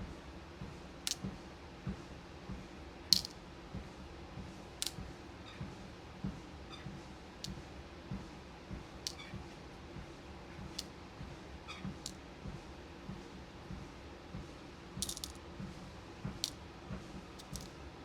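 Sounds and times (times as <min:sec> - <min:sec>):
faint steady hum: 0:00.0 - 0:18.0
beads clicking: 0:03.1 - 0:03.4, 0:09.1 - 0:09.3, 0:15.0 - 0:15.4, 0:17.4 - 0:17.8.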